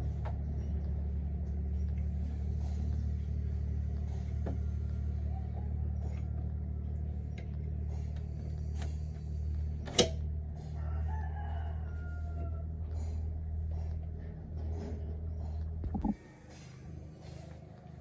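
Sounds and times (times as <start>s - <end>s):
steady low hum: 0.0s - 18.0s
tools tapping on metal: 9.9s - 10.2s.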